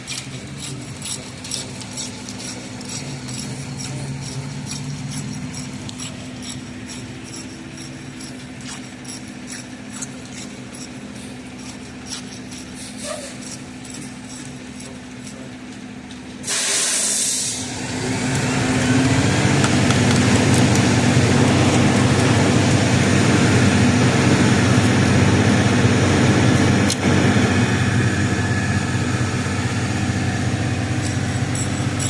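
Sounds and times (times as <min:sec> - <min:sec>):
diesel truck engine: 0:00.0 - 0:32.0
air brake hiss: 0:16.4 - 0:17.7.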